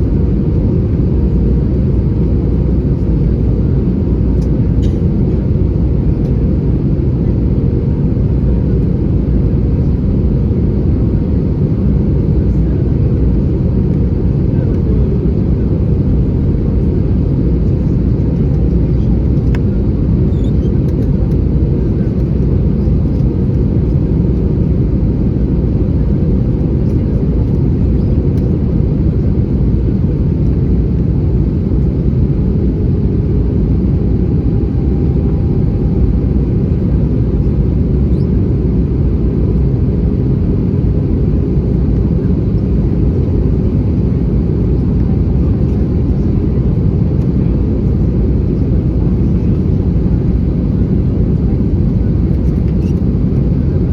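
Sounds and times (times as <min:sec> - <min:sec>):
airplane cabin rumble: 0:00.0 - 0:53.9.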